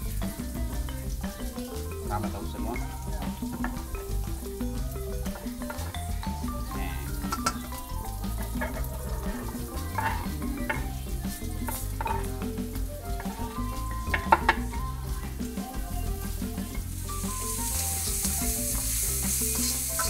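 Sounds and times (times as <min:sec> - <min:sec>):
onion sizzling in oil: 0:03.0 - 0:14.3, 0:14.9 - 0:20.0
spatula scraping wok: 0:16.7 - 0:20.0.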